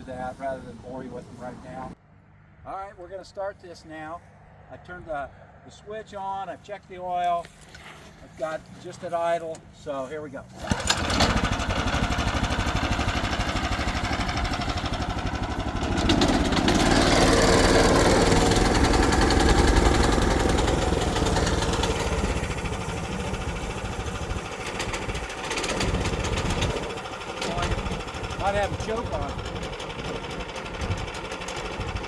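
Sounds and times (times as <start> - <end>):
sawmill engine starting and running: 7.3 - 32.0.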